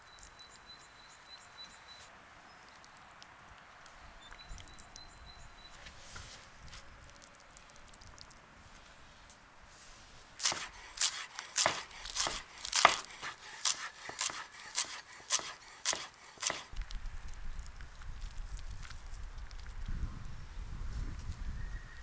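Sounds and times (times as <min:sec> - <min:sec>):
knife chopping on cutting board: 0:10.4 - 0:16.7.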